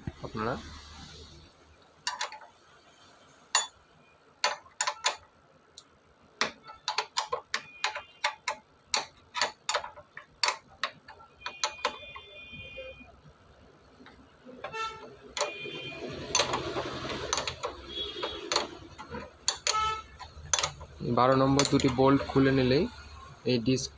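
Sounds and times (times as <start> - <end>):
ratchet wrench clicking: 16.3 - 22.3.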